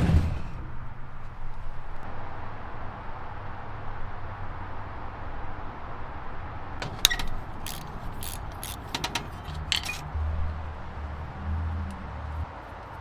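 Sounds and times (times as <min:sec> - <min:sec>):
metallic clicks and clinks: 0:06.8 - 0:10.1.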